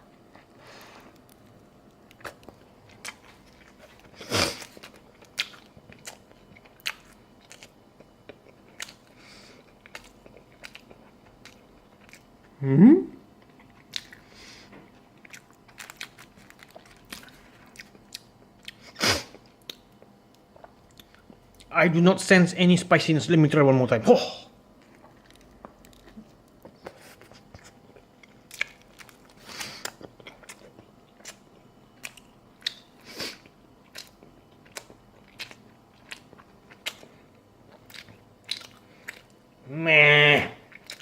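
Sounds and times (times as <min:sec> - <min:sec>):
man chewing with wet crunches: 0:00.0 - 0:12.6, 0:13.3 - 0:21.7, 0:24.7 - 0:39.7, 0:40.6 - 0:41.0
man humming: 0:12.6 - 0:13.2, 0:39.6 - 0:40.6.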